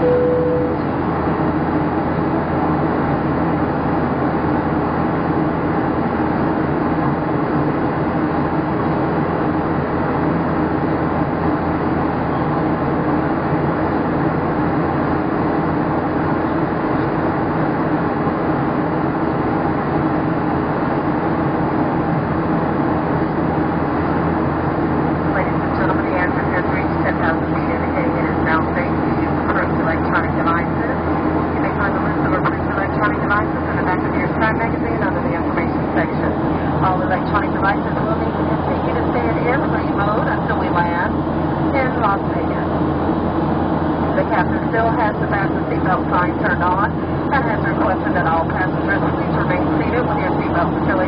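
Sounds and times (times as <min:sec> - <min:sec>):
cabin chime tone: 0:00.0 - 0:00.9
airplane cabin engine rush: 0:00.0 - 0:51.0.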